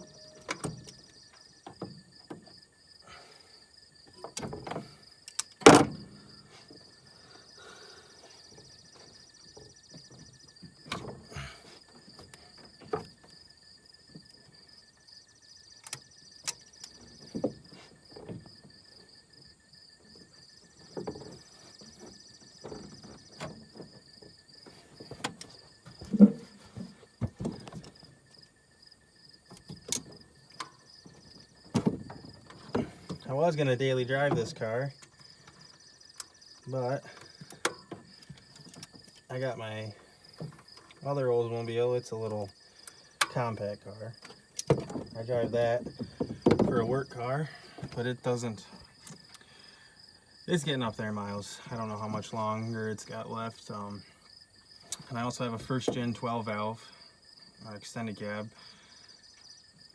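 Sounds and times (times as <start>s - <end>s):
hand tools clanking: 24.7s - 27.9s, 29.6s - 33.6s.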